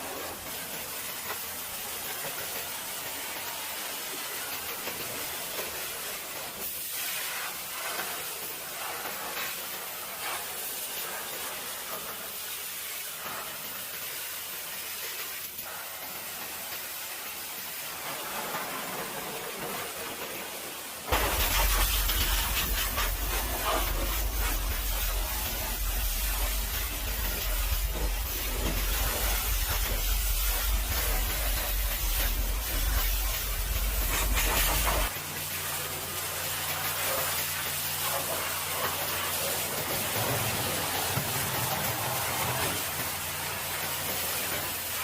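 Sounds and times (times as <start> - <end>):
pressure washer spray hiss: 0.0 - 45.0
low rumble: 21.1 - 35.1.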